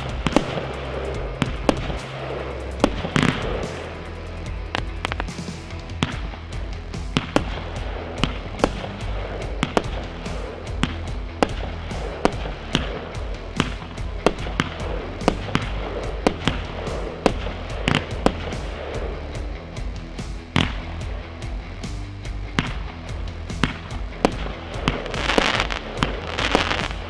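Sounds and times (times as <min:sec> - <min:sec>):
fireworks banging: 0:00.0 - 0:21.5, 0:22.5 - 0:27.0
background music: 0:00.0 - 0:27.0.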